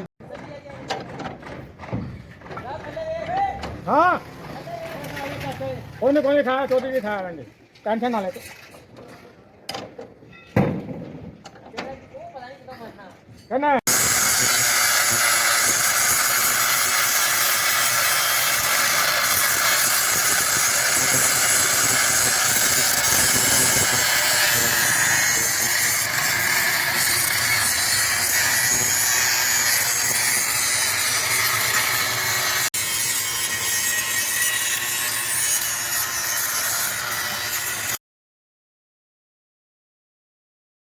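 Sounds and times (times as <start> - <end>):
power tool running under load: 13.9 - 34.9.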